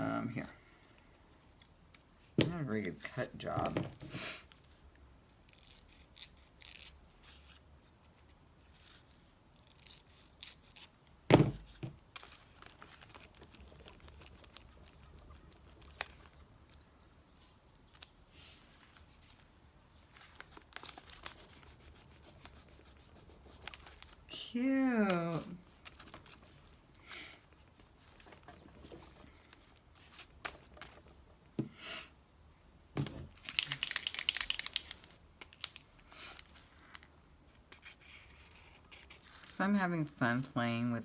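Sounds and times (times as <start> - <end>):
dull thump: 11.3 - 12.0
paper rustling and rubbing: 11.6 - 24.4, 25.0 - 31.2, 36.3 - 39.5.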